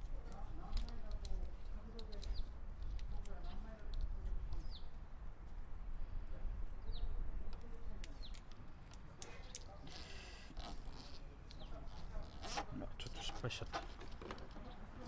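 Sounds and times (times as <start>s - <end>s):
rustle of handling: 8.1s - 15.0s.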